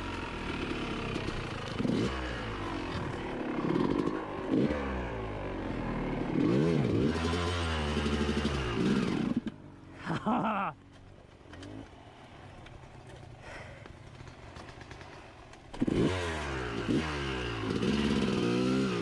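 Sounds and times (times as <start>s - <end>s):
motorcycle engine revving: 0.0s - 9.8s, 11.4s - 19.0s.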